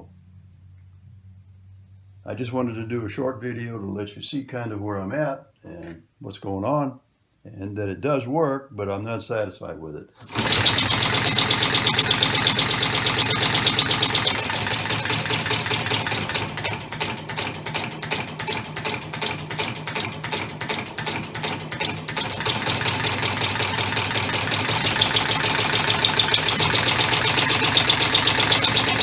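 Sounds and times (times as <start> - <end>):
compressed-air engine clattering: 10.3 - 18.2, 19.1 - 29.0.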